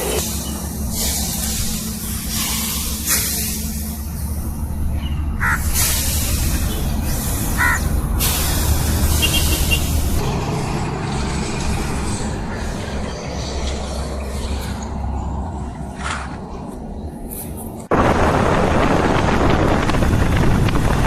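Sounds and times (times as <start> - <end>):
bird calls: 4.9 - 5.9, 6.8 - 8.0
wind on microphone: 17.9 - 21.0.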